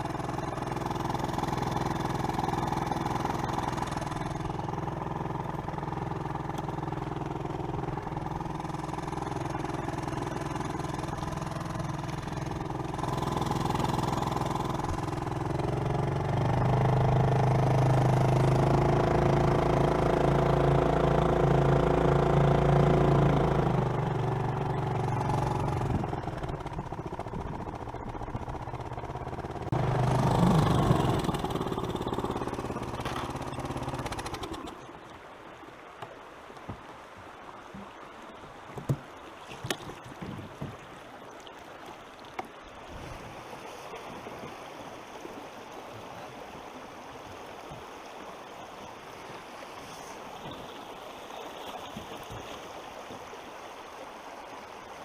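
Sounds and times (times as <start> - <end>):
small outboard motor running: 0.0 - 55.0
water flowing over rapids: 0.0 - 55.0
sharp knocks against boat: 36.0 - 36.9, 38.7 - 41.0.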